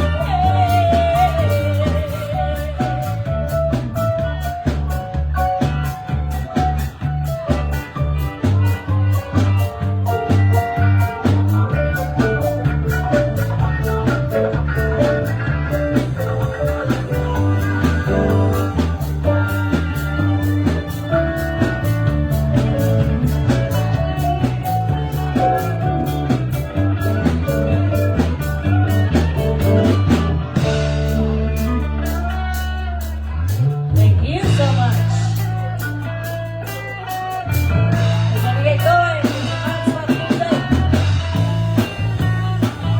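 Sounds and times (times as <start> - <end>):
drum beat: 0.0 - 31.8
bass line: 0.0 - 42.9
guitar notes: 0.0 - 42.9.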